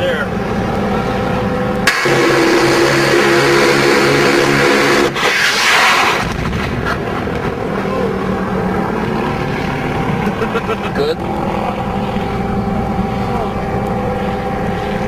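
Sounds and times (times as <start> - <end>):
rushing noise: 1.8 - 10.6
helicopter engine and rotor: 7.5 - 15.0.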